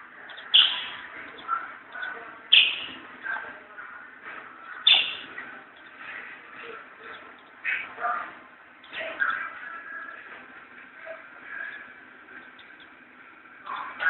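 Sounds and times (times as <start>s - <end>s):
soft bird chirps: 0.2s - 3.6s, 4.5s - 8.2s, 8.8s - 10.3s, 11.0s - 13.0s.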